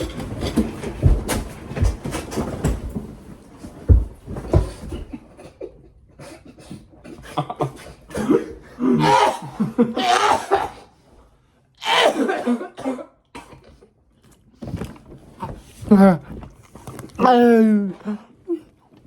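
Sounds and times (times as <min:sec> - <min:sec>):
person coughing: 0:05.4 - 0:10.9, 0:11.8 - 0:13.8.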